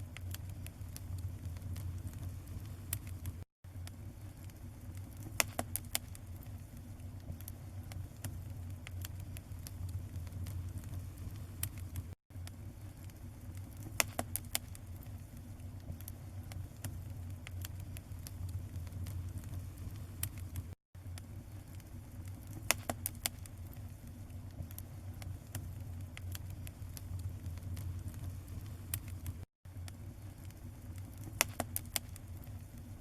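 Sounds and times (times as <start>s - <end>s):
low rumble: 0.0s - 3.5s
bonfire crackling and popping: 0.0s - 33.0s.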